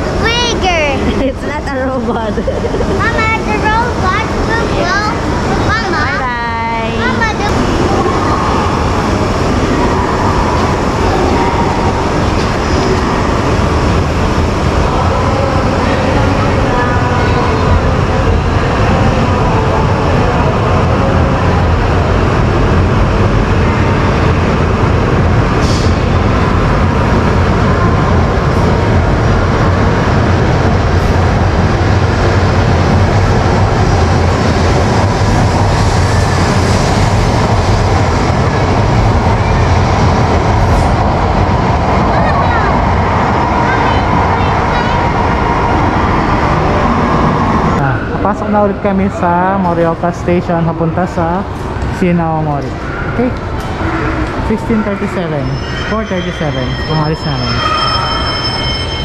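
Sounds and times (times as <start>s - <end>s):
train rumbling: 0.0s - 59.0s.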